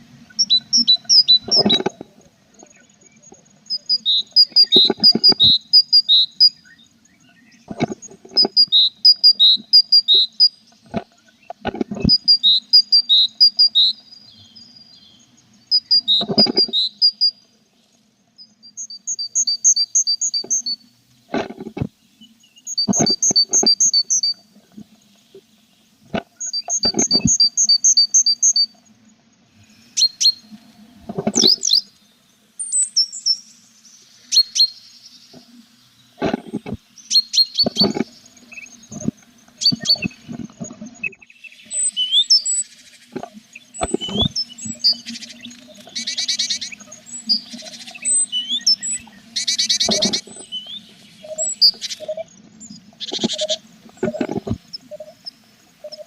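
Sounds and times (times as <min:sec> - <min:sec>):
nestlings peeping: 0:00.3 - 0:56.0
birds scratching in nest box: 0:01.3 - 0:02.1, 0:04.5 - 0:05.6, 0:16.1 - 0:16.9, 0:22.9 - 0:24.0, 0:26.1 - 0:27.4, 0:31.0 - 0:31.7, 0:36.2 - 0:36.8, 0:37.6 - 0:38.2, 0:38.9 - 0:41.0, 0:49.6 - 0:50.6, 0:53.0 - 0:54.7
buzzy begging calls: 0:36.2 - 0:56.0.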